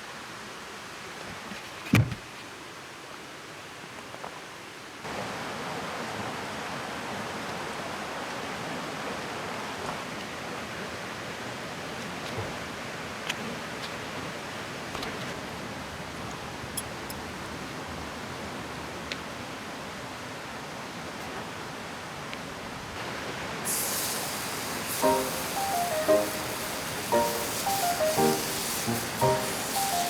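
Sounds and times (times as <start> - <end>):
river flowing: 23.0 - 30.0.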